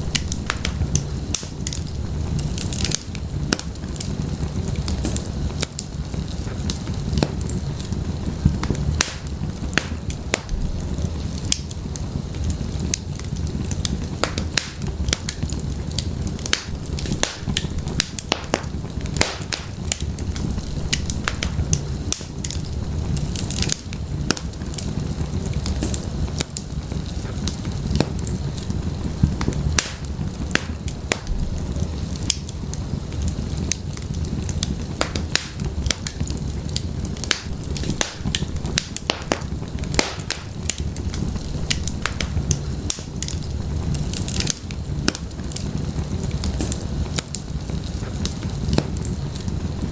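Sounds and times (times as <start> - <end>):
firewood crackling and popping: 0.0 - 49.9
low rumble of flames: 0.0 - 49.9.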